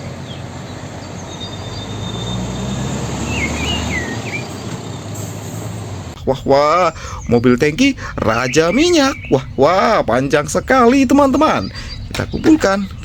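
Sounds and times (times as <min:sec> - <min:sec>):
noisy outdoor background: 0:00.0 - 0:13.0
small bird chirping: 0:00.0 - 0:13.0
low hum: 0:03.6 - 0:13.0.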